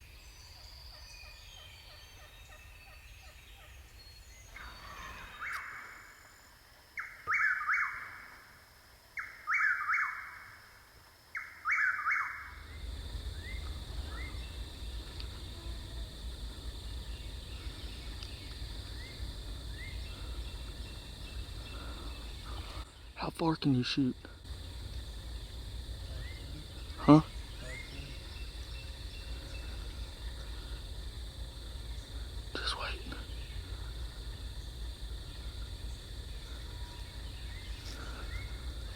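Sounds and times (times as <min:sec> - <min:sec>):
faint bird chirps: 0:00.0 - 0:08.5, 0:09.2 - 0:10.6, 0:11.4 - 0:31.0, 0:31.6 - 0:38.9
steady low rumble: 0:12.5 - 0:22.8, 0:24.2 - 0:38.9.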